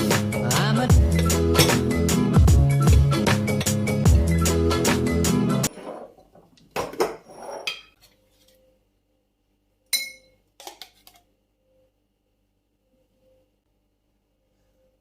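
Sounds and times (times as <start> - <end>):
dishes clattering: 1.6 - 1.8, 5.7 - 8.0
sharp glass clink: 9.9 - 10.4.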